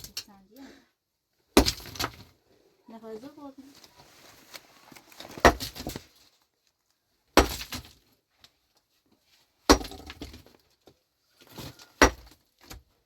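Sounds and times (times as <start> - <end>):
hand tool striking hard material: 5.4 - 6.0, 7.4 - 7.9, 9.7 - 10.4, 12.0 - 12.4.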